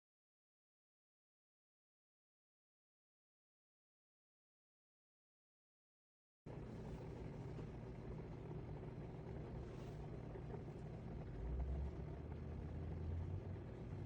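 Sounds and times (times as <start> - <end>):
dishwasher hum and rumble: 6.5 - 14.0.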